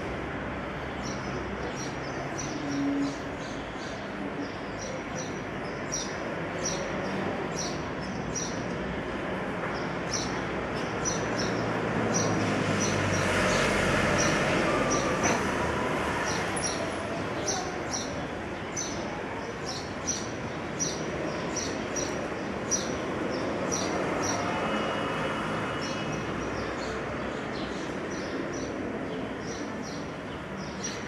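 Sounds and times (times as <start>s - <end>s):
outdoor background noise: 0.0s - 31.0s.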